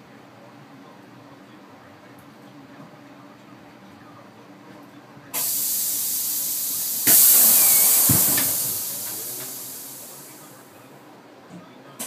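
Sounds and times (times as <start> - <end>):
compressed air hissing: 5.4 - 10.6.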